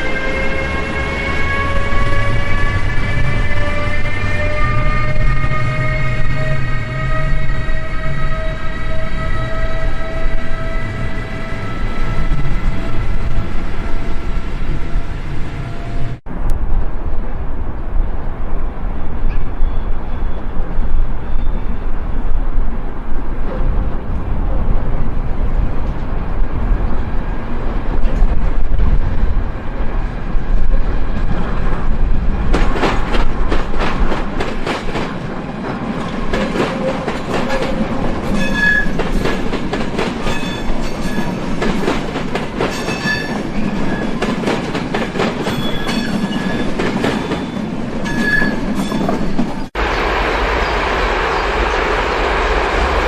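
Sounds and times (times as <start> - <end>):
high-pitched wheel squeals: 0.0 - 13.1, 38.3 - 39.3, 42.7 - 44.2, 45.5 - 49.4
train rumbling past: 0.0 - 53.0.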